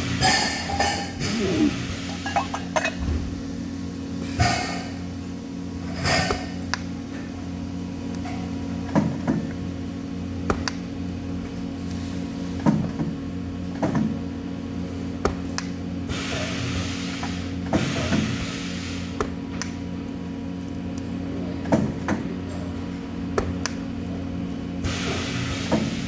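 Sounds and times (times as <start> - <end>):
electrical hum of equipment: 0.0 - 26.0
hiss: 16.1 - 19.2, 24.9 - 26.0.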